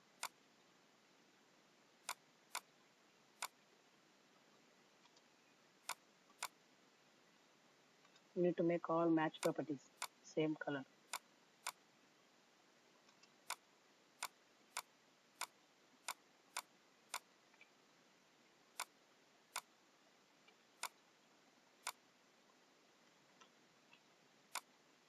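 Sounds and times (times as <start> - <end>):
computer mouse clicking: 2.1 - 2.7, 5.8 - 6.6, 9.4 - 10.2, 14.2 - 17.7, 23.4 - 24.7.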